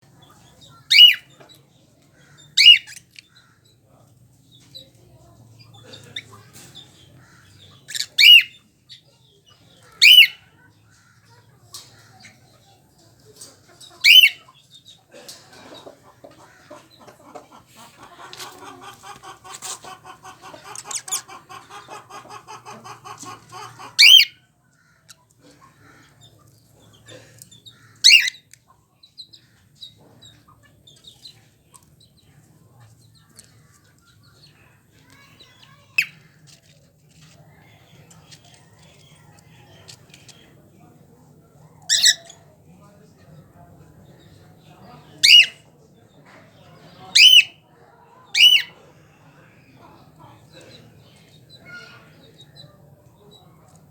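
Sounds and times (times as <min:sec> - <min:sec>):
shrill bird calls: 0:00.9 - 0:01.3, 0:02.6 - 0:02.9, 0:14.1 - 0:14.4, 0:24.0 - 0:24.4, 0:45.2 - 0:45.6, 0:47.2 - 0:47.6, 0:48.4 - 0:48.7
rapid buzzy bird chatter: 0:15.7 - 0:40.6.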